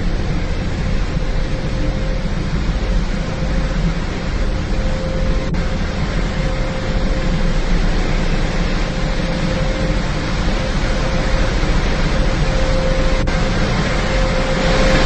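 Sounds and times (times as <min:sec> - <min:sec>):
faint steady hum: 0:00.0 - 0:15.0
car wash machinery rushing: 0:07.4 - 0:15.0.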